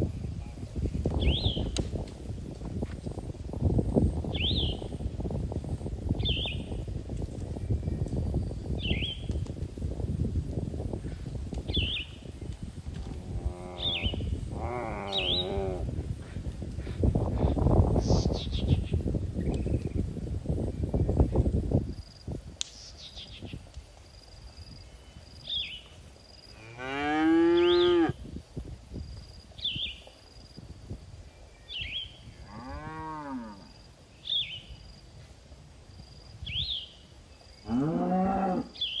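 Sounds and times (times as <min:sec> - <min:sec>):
cows mooing: 0:26.7 - 0:28.2, 0:37.7 - 0:38.7.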